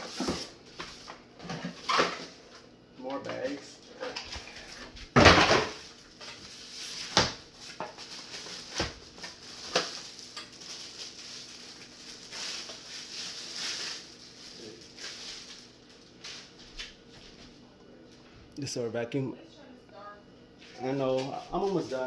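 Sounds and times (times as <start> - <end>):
plastic bags rustling: 4.1 - 16.7.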